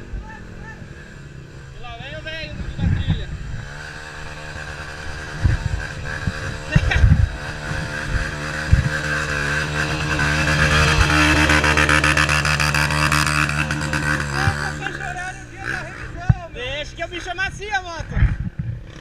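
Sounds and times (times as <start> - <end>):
dirt bike engine running: 0.0 - 19.0
sharp thumps: 5.3 - 14.8.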